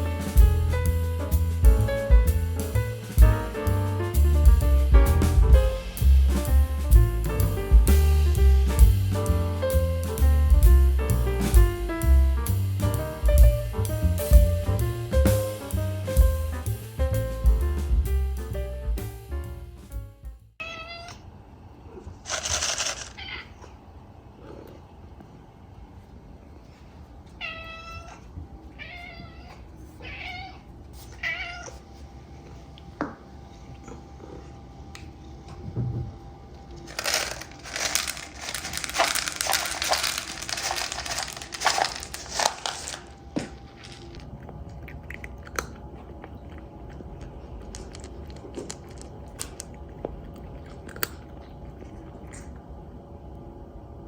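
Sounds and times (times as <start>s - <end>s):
cat meowing: 20.6s - 21.3s, 23.1s - 23.8s, 27.4s - 31.8s
crinkling cat food bag: 22.2s - 23.4s, 36.8s - 52.6s.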